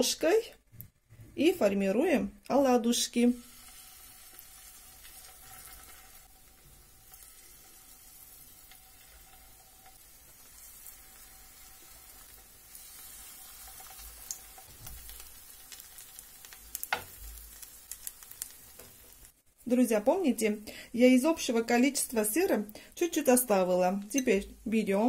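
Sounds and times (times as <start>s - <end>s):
batter sizzling in oil: 2.9s - 25.0s.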